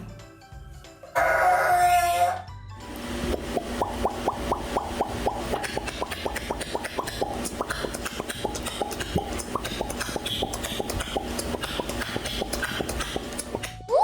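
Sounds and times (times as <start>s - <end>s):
parrot clicking: 4.2s - 13.8s.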